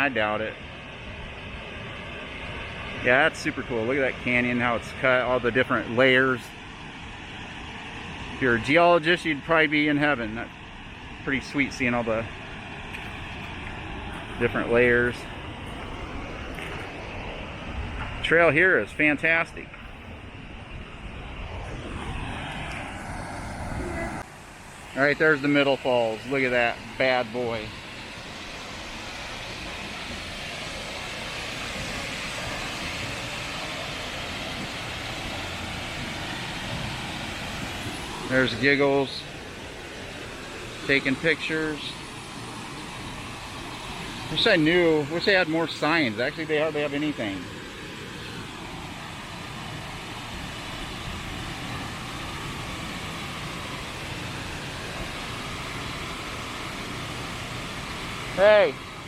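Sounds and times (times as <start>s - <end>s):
rushing waterfall: 21.2s - 59.0s.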